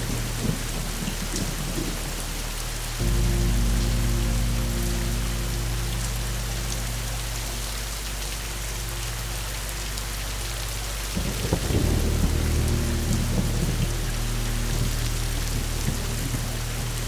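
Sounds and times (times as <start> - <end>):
heavy rain: 0.0 - 17.0
thunder rumbling: 0.0 - 17.0
crackling thunder peal: 10.0 - 17.0.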